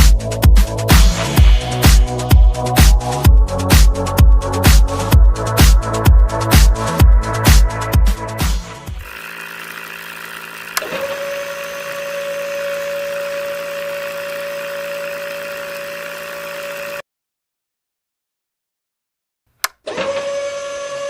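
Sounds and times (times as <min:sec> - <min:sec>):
small motor whining: 0:08.9 - 0:17.0, 0:19.9 - 0:21.0
motor switch click: 0:09.0 - 0:17.0, 0:19.6 - 0:20.2.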